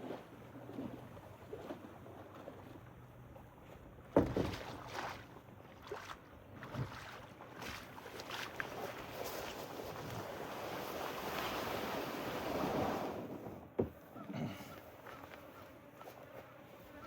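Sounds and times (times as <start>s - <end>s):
paddle strokes splashing: 0.0s - 13.6s
knocks against kayak hull: 4.2s - 4.7s, 13.8s - 14.0s.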